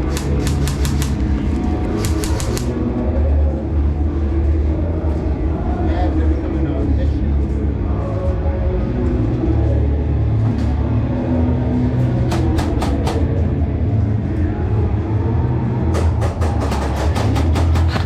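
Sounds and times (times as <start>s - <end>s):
airsoft rifle firing bursts: 0.0s - 1.2s, 1.9s - 2.8s
steady low rumble: 0.0s - 16.4s.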